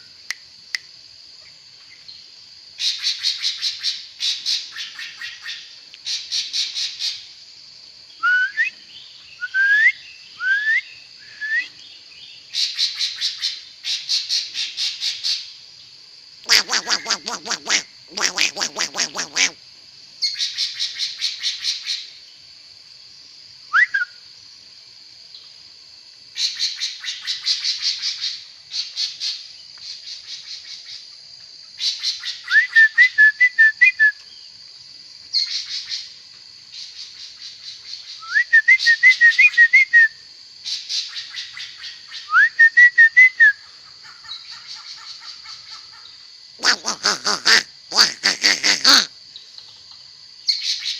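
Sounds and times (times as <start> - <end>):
bird rising whistle: 8.2 - 8.8, 9.4 - 11.8
bird warbled whistle: 16.5 - 19.6
songbird rattling chatter: 16.5 - 19.6, 46.6 - 49.1.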